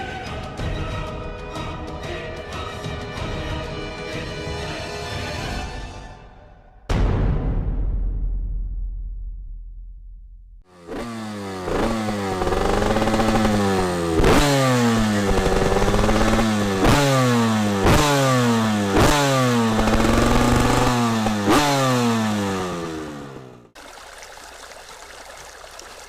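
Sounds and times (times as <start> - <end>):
two-stroke motorcycle engine revving: 10.7 - 23.8.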